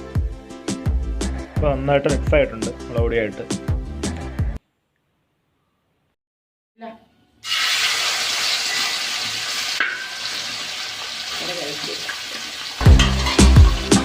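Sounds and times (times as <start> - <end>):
fish sizzling in hot oil: 7.4 - 14.0.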